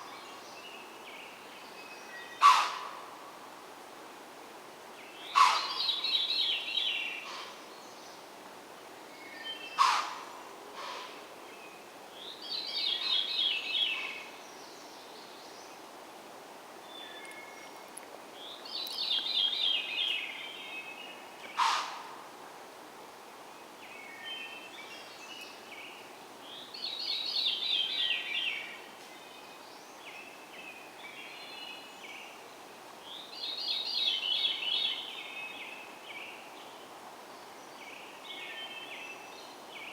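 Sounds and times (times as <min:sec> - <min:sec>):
steady outdoor hiss: 0:00.0 - 0:39.9
songbird singing: 0:05.0 - 0:08.2, 0:09.1 - 0:15.8, 0:16.8 - 0:21.9, 0:23.5 - 0:39.9.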